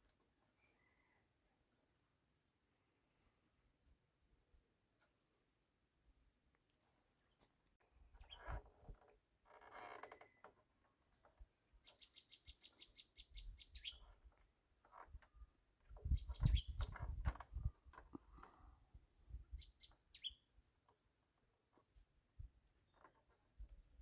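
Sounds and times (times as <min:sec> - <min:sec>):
bird chirping: 0:08.2 - 0:08.5, 0:11.8 - 0:14.2, 0:16.0 - 0:17.1, 0:19.5 - 0:20.5.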